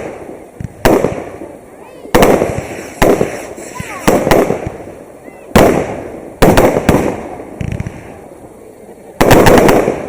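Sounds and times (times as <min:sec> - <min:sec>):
fireworks bangs with rumbling echo: 0:00.0 - 0:10.0
small firework crackles: 0:00.0 - 0:10.0.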